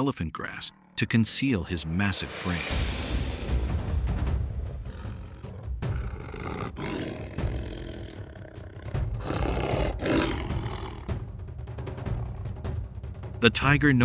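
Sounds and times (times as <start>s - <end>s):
tiger growling: 4.4s - 13.1s.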